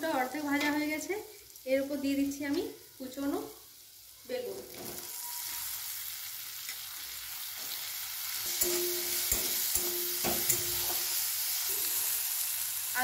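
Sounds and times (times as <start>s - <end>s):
vegetables sizzling in oil: 0.0s - 13.0s
metal spatula scraping a pan: 8.5s - 12.2s.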